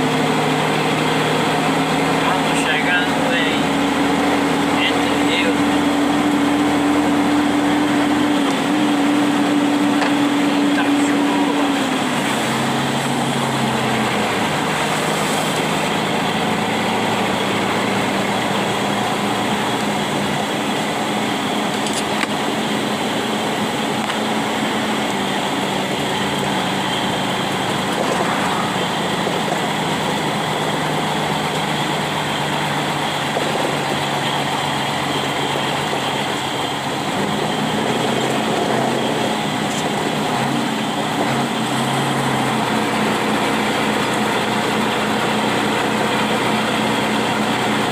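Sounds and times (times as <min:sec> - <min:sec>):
vehicle engine drone: 0:00.0 - 0:47.9
rain hiss on wet road: 0:28.6 - 0:47.9.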